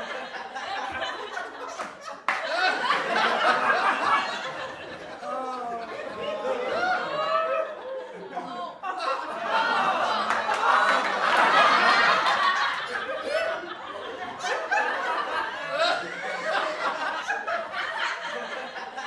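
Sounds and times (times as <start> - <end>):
people laughing: 0.0 - 19.0.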